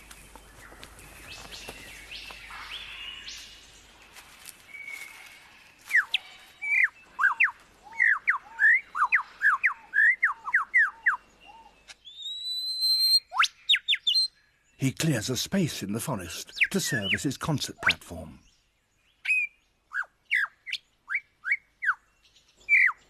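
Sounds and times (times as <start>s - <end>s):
lyrebird singing whistled notes: 5.9s - 14.3s, 19.2s - 22.0s, 22.6s - 23.0s.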